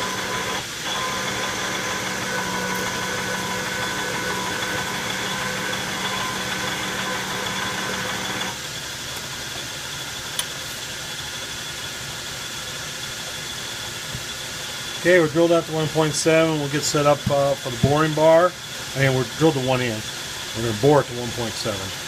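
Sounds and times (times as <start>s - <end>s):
metal lathe motor hum: 0.0s - 9.4s, 13.2s - 22.0s.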